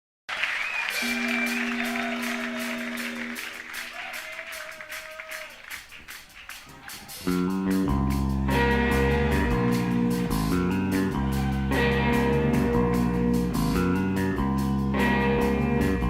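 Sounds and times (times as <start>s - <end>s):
audience applauding and cheering: 0.3s - 7.5s
held instrument note: 1.0s - 3.8s
live band playing bass and guitar: 7.2s - 16.0s.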